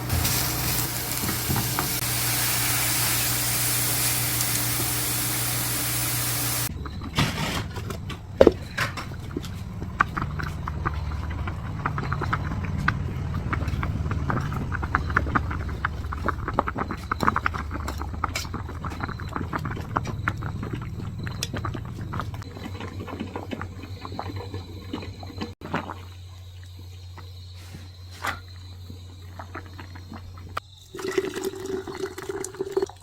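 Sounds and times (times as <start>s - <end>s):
liquid bubbling and splashing: 8.4s - 26.0s, 29.6s - 33.0s.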